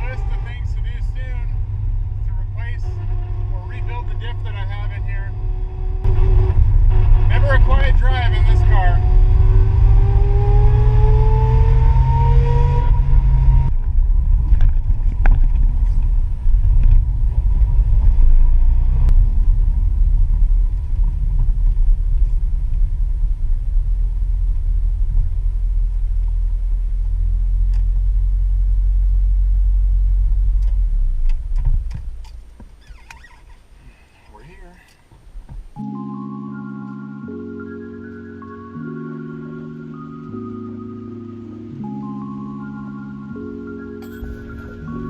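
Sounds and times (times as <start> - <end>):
car engine accelerating: 0.0 - 32.6, 37.2 - 45.0
car driving on road drone: 0.0 - 35.8, 43.2 - 45.0.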